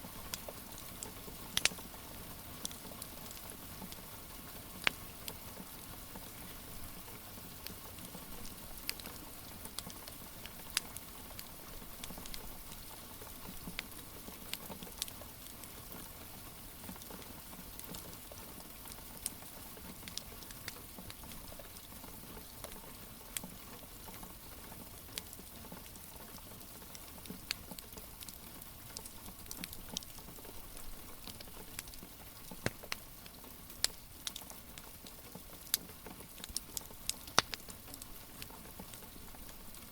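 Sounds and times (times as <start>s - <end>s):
soft rain hiss: 0.0s - 39.9s
wood fire crackling and popping: 0.2s - 1.9s, 2.6s - 4.0s, 4.8s - 5.4s, 7.6s - 12.9s, 13.5s - 15.2s, 27.0s - 39.9s.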